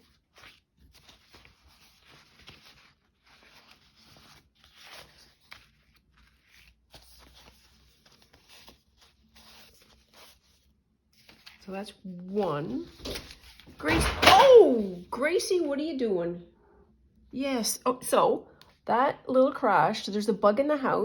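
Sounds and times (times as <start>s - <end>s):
paper rustling and shuffling: 0.0s - 15.0s
soft taps and slides of pages: 0.4s - 11.6s.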